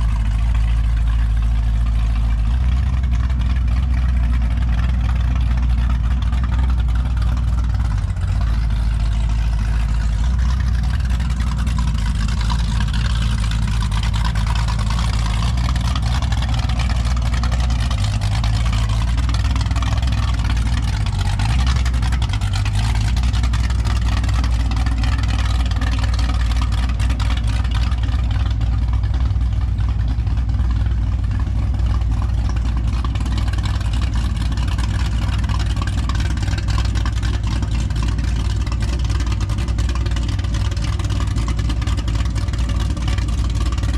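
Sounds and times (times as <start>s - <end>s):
motorboat engine running: 0.0s - 43.9s.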